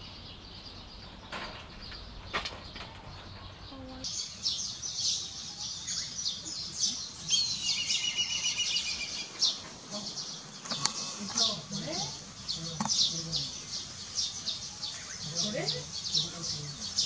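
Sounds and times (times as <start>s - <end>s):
birds chirping: 0.0s - 17.0s
rapid bird trill: 4.1s - 9.6s.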